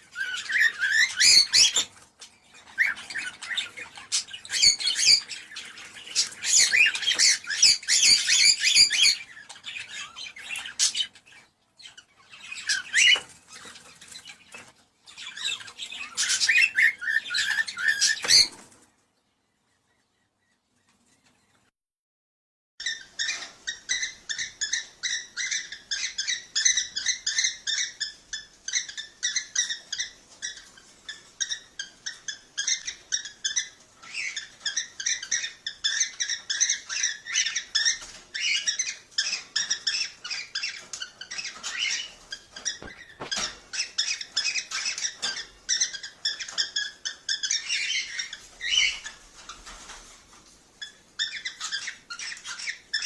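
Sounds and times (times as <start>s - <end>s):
cockatiels chirping: 0.0s - 18.8s, 22.8s - 53.0s.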